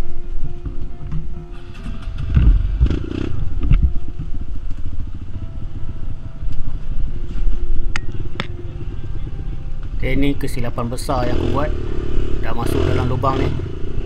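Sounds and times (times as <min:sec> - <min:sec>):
trail bike engine revving: 0:01.8 - 0:03.7, 0:08.8 - 0:14.0.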